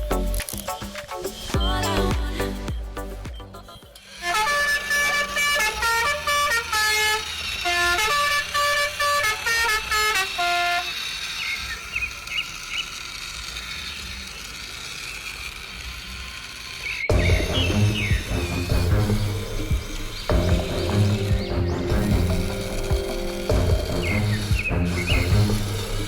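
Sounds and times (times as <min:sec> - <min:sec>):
vehicle horn tooting a tune: 0:04.1 - 0:11.1
steady hiss: 0:17.8 - 0:26.0.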